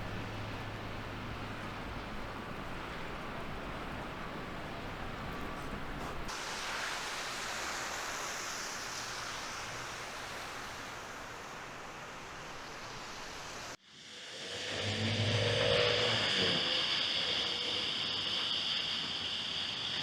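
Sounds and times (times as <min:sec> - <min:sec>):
low engine hum: 0:00.0 - 0:06.3.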